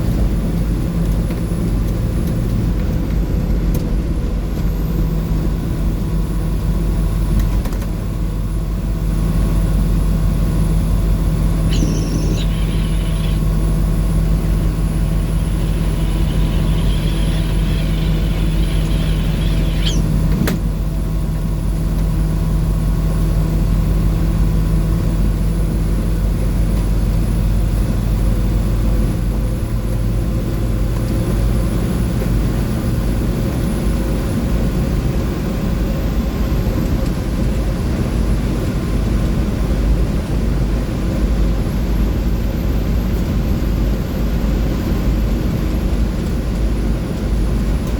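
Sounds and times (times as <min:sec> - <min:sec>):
road and tyre noise: 0:00.0 - 0:24.2
diesel bus engine droning: 0:00.0 - 0:47.9
sharp click: 0:15.4 - 0:20.6.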